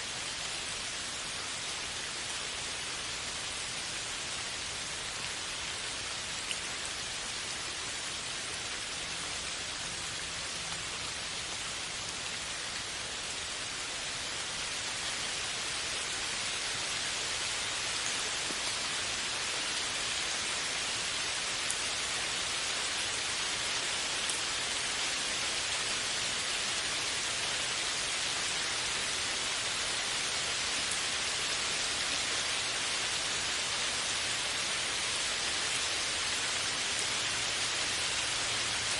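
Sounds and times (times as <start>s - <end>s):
steady rain hiss: 0.0s - 38.9s
faint raindrop ticks: 6.4s - 6.8s, 17.9s - 18.8s.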